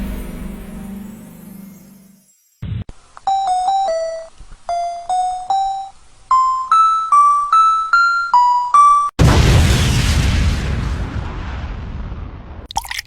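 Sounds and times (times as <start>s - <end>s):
high keyboard melody: 3.3s - 9.2s
loud noisy burst: 9.2s - 12.7s.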